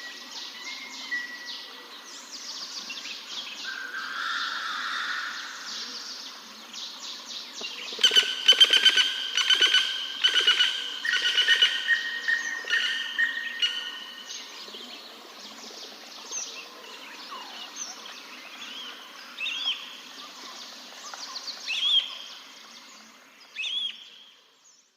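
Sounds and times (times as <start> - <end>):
birds chirping: 7.6 - 19.9.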